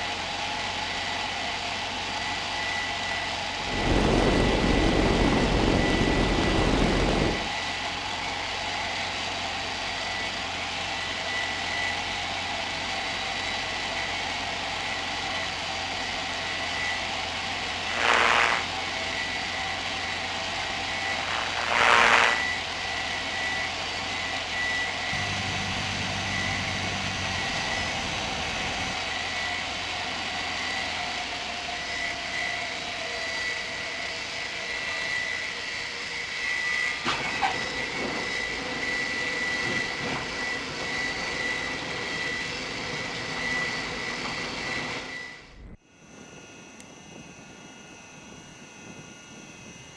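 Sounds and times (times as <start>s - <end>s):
small plane engine and propeller: 0.0s - 49.9s.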